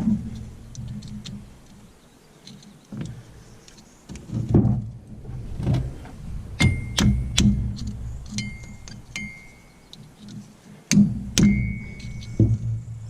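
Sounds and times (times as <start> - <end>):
hammer striking metal hub: 8.4 - 9.7, 11.4 - 12.6.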